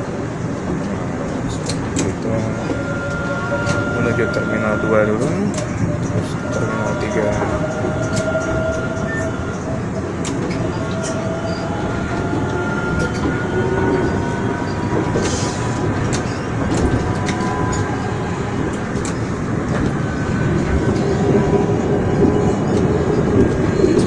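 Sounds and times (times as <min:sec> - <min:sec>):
train rumble from inside: 0:00.0 - 0:24.0
faint whining tones: 0:01.4 - 0:24.0.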